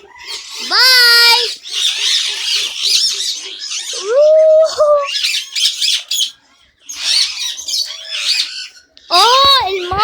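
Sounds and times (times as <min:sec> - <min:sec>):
parrots chattering and squawking: 0:00.0 - 0:10.0.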